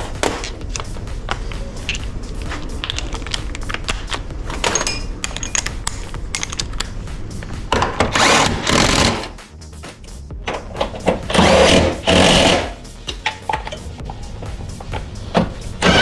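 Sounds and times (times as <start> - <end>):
tools clicking against metal: 2.8 - 6.9
power tool burst: 8.0 - 9.4, 11.3 - 12.8.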